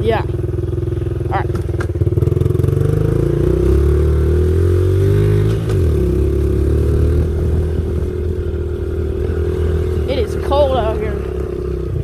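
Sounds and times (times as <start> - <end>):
pit bike engine running: 0.0 - 12.0.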